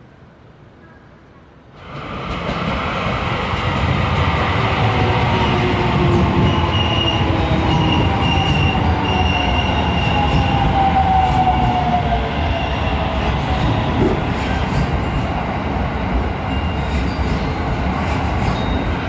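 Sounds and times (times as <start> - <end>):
train rumble: 1.7 - 19.0
train running tone: 1.8 - 19.0
high wheel squeal: 6.2 - 10.9.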